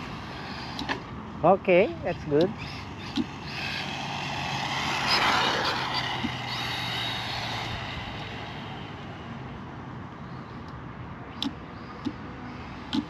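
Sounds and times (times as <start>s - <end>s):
toy car electric motor whining: 0.0s - 1.1s, 2.0s - 9.4s.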